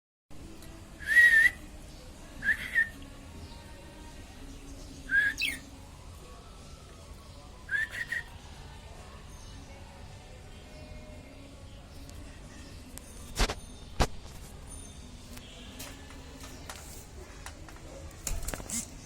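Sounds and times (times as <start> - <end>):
budgerigar whistled calls: 5.2 - 5.6.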